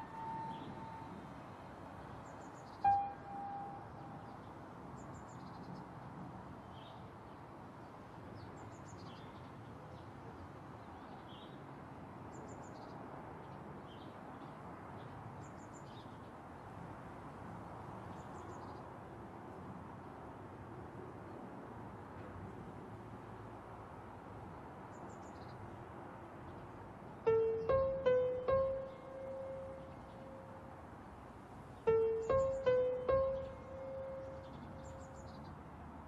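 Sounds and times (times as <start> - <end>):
outdoor background hiss: 0.0 - 9.6, 14.2 - 36.0
small birds chirping: 31.8 - 35.6.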